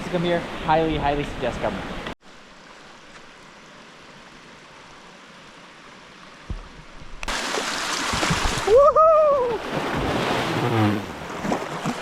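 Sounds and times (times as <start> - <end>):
creek water rushing over rock: 0.1 - 12.0.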